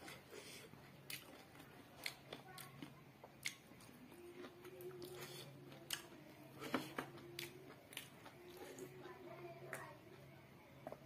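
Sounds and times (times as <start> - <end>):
faint steady hum: 0.0 - 11.0
wet chewing clicks and smacks: 1.1 - 4.0, 7.4 - 8.9.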